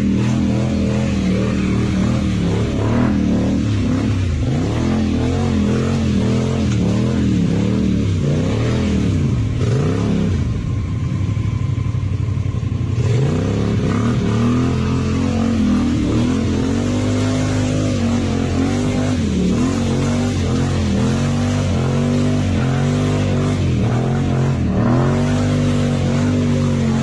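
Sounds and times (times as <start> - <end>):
quad bike engine revving: 0.0 - 11.1, 12.4 - 27.0.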